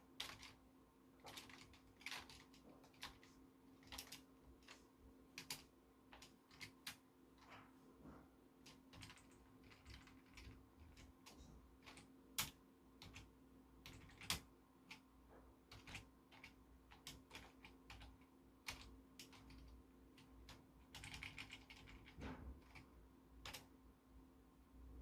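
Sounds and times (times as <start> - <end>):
faint steady hum: 0.0 - 25.0
keyboard typing clicks: 1.2 - 4.8, 5.4 - 7.0, 8.7 - 15.0, 15.7 - 23.7.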